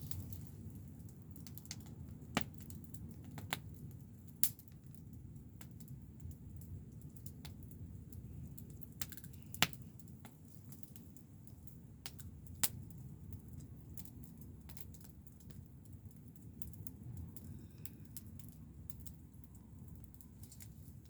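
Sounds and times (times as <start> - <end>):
low steady rumble: 0.0 - 2.4, 15.6 - 21.0
wood fire crackling and popping: 0.0 - 21.0.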